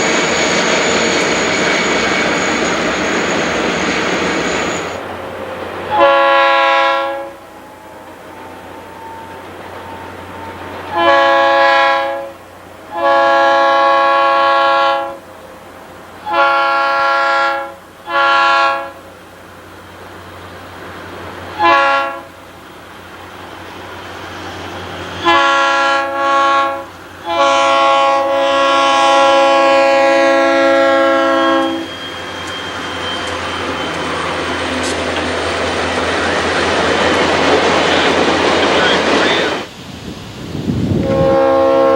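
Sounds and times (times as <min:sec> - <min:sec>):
train rumble: 0:00.0 - 0:41.9
locomotive air horn blasts: 0:05.9 - 0:15.3, 0:16.2 - 0:19.0, 0:21.5 - 0:22.4, 0:25.2 - 0:32.4, 0:40.9 - 0:41.9.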